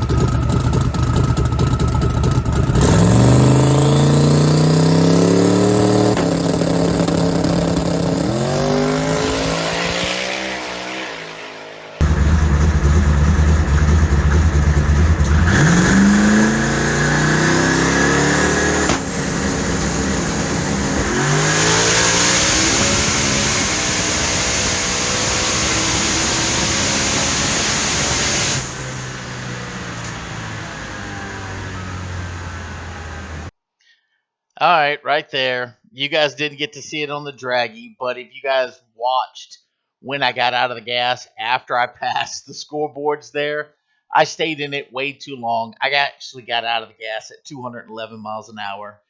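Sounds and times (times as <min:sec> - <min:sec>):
car engine at full throttle: 0:00.0 - 0:33.5.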